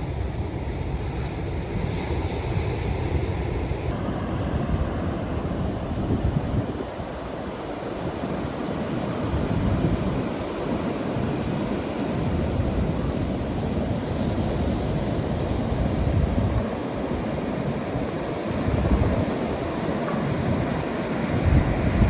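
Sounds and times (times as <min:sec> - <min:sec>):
ocean surf breaking on beach: 0:00.0 - 0:22.0
wind buffeting microphone: 0:00.0 - 0:22.0.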